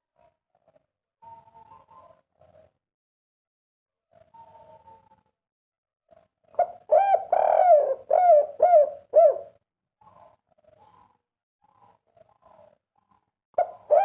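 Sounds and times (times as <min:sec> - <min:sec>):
dove cooing: 0:06.6 - 0:09.6, 0:13.6 - 0:14.0.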